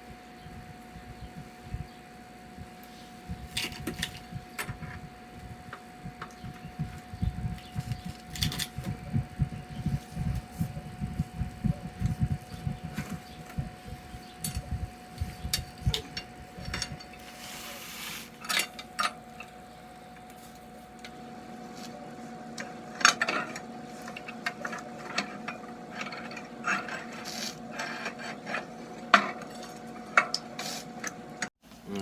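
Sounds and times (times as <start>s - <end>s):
faint steady hum: 0.0s - 32.0s
tools and metal parts handled: 3.5s - 5.0s, 6.2s - 9.0s, 14.2s - 22.0s, 22.6s - 31.2s.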